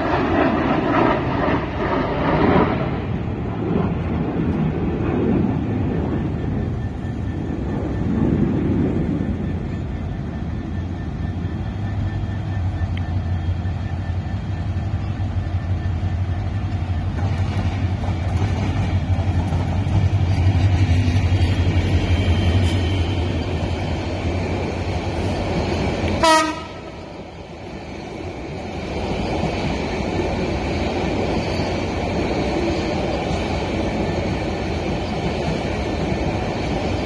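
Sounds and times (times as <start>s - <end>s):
idling diesel locomotive drone: 0.0s - 37.0s
passenger coaches rolling past: 0.0s - 37.0s
train horn blast: 26.2s - 27.1s.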